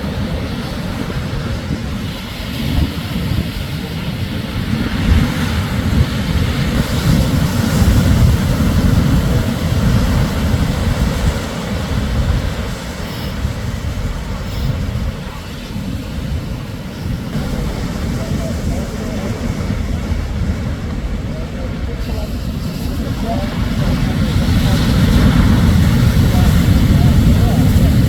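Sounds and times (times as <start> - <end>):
waves breaking on beach: 0.0 - 28.0.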